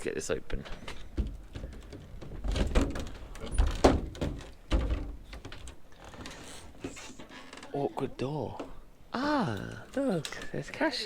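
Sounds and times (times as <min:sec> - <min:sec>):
door knocks and thuds: 0:01.2 - 0:05.7.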